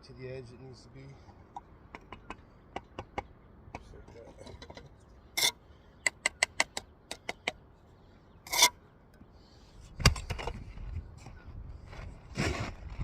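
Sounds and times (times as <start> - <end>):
trowel scraping: 5.4 - 5.6, 8.5 - 8.8, 12.3 - 13.0.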